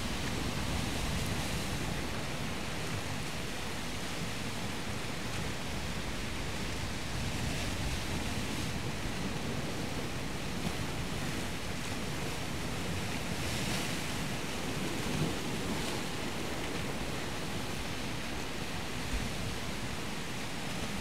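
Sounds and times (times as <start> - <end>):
ocean surf washing: 0.0 - 21.0.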